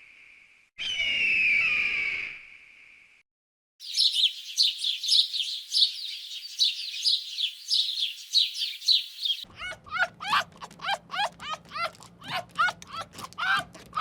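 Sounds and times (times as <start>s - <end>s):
bird chirping rapidly: 3.8s - 9.5s
low sweeping bird calls: 3.8s - 9.5s.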